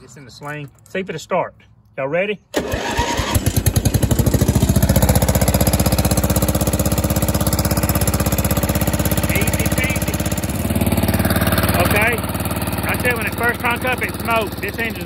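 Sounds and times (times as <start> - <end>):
starter motor cranking: 2.5 - 15.0
mower engine running: 2.6 - 15.0.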